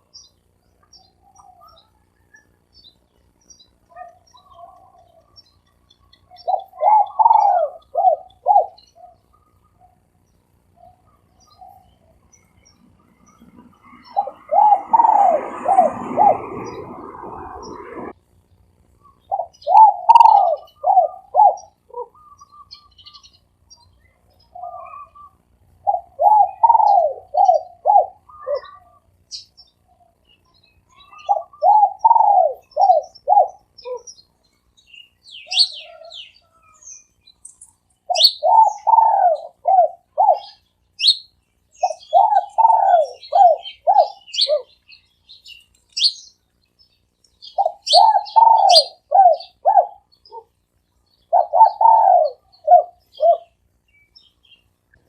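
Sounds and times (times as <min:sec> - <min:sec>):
small birds chirping: 0:00.0 - 0:55.0
dove cooing: 0:06.3 - 0:10.0, 0:12.8 - 0:18.1, 0:19.3 - 0:22.4, 0:24.5 - 0:29.0, 0:31.0 - 0:34.1, 0:38.1 - 0:40.6, 0:41.8 - 0:44.8, 0:47.6 - 0:50.5, 0:51.3 - 0:53.6.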